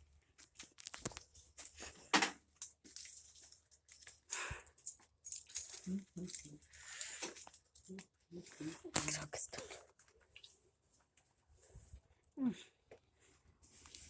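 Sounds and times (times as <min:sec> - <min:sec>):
metal tools clinking: 0:01.2 - 0:09.2.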